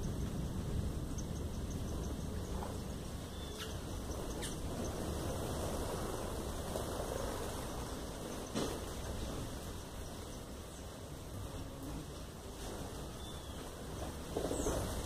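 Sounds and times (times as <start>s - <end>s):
low background rumble: 0.0s - 15.0s
faint bird chirps: 3.2s - 5.0s.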